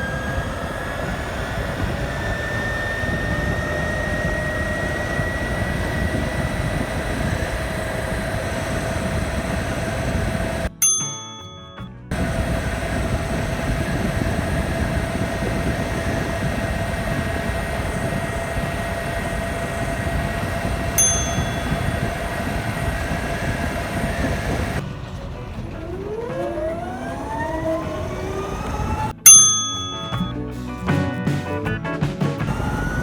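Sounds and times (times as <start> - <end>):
wind rush on microphone: 0.0 - 10.7, 12.1 - 29.1, 32.4 - 33.0
electric motor whine: 0.0 - 10.8, 12.1 - 30.3, 32.4 - 33.0
short ding: 10.7 - 12.0, 21.0 - 21.8, 29.3 - 30.4.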